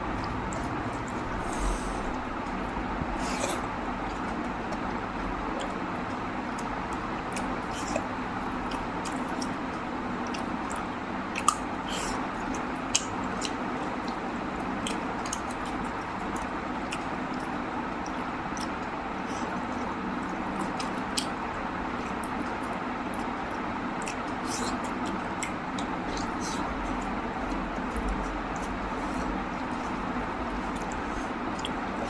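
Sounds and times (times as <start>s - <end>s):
person chewing food: 0.0s - 32.0s
wet mouth clicks: 10.2s - 14.2s.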